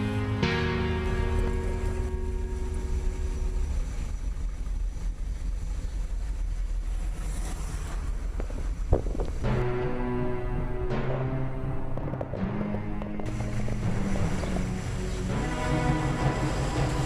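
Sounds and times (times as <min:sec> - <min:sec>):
music: 0:00.0 - 0:04.2, 0:09.2 - 0:17.0
wind rumble on microphone: 0:01.4 - 0:15.6.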